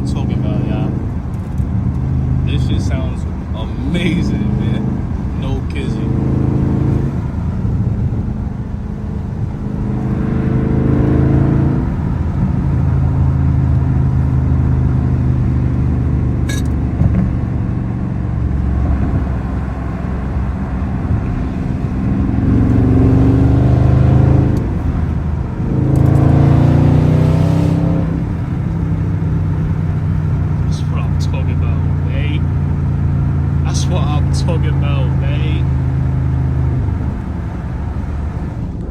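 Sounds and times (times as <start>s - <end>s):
car exhaust droning: 0.0s - 38.9s.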